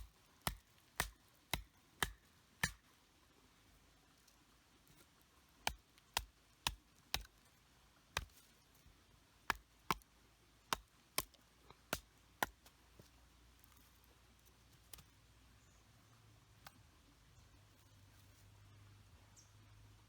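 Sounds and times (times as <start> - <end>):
hatchet chopping firewood: 0.0 - 2.8, 5.6 - 7.4, 8.2 - 8.4, 9.5 - 10.0, 10.7 - 13.1.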